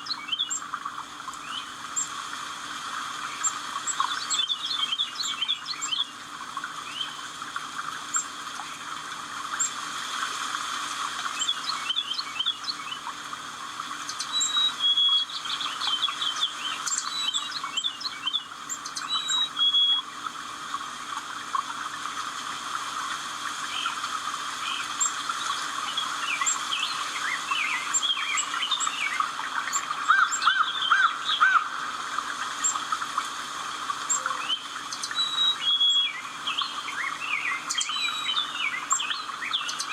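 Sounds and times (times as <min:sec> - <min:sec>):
birds chirping and singing: 0:00.0 - 0:02.1, 0:03.2 - 0:06.2, 0:11.3 - 0:13.1, 0:14.0 - 0:20.2, 0:24.6 - 0:31.8, 0:34.0 - 0:39.9
steady background hiss: 0:00.0 - 0:39.9.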